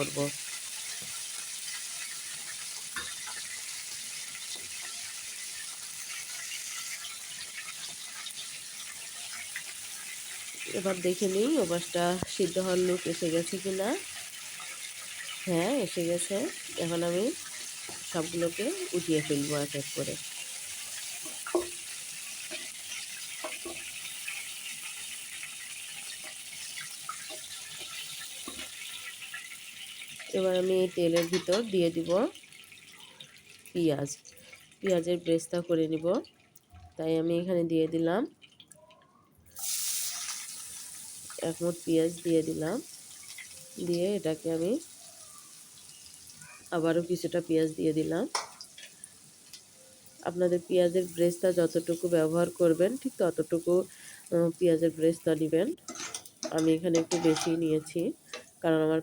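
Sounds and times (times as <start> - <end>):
oil crackling and popping: 0.0 - 37.0, 38.3 - 54.3, 55.1 - 58.6
chicken frying in hot oil: 0.0 - 37.1, 37.9 - 59.0
utensil clinking against pan: 55.9 - 58.5.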